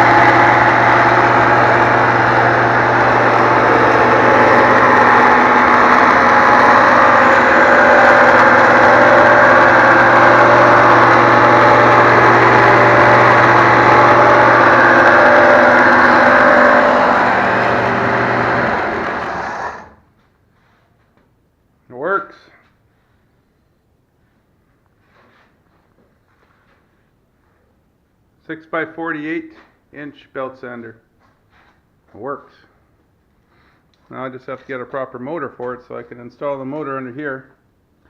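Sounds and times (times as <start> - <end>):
belt sander running: 0.0 - 20.0.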